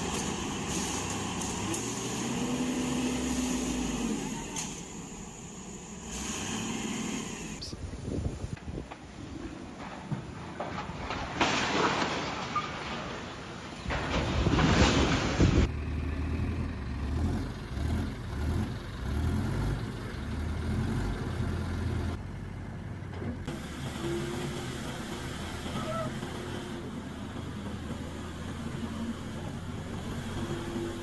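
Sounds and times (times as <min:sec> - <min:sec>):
heavy machinery diesel engines: 0:00.0 - 0:07.7, 0:13.9 - 0:31.0.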